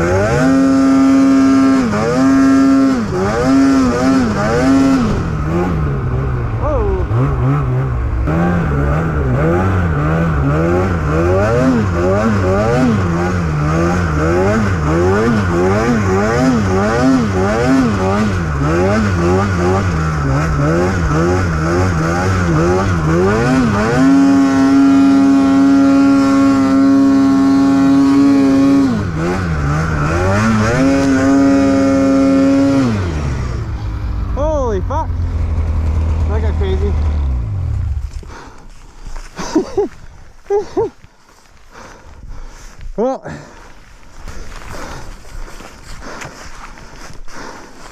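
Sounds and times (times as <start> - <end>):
snowmobile engine revving: 0.0 - 41.0.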